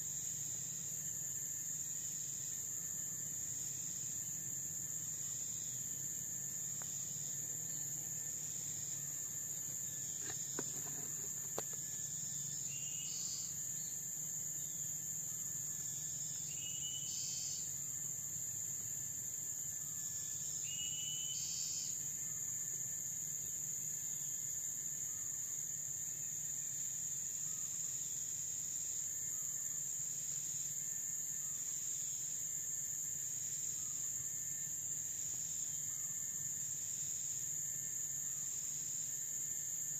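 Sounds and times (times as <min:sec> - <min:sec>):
insects droning: 0:00.0 - 0:39.9
short whistled calls: 0:20.7 - 0:21.8.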